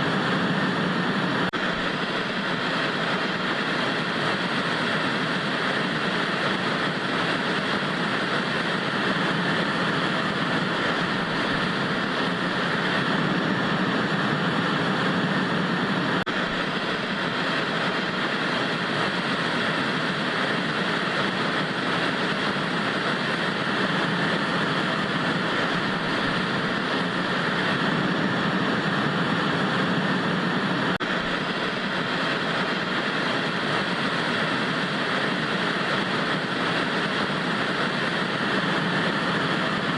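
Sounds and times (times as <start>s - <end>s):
tv static hiss: 0.0s - 39.9s.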